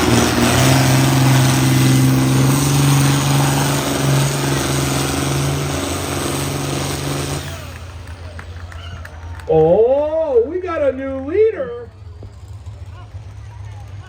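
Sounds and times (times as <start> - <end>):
tractor engine revving hard: 0.0 - 14.0.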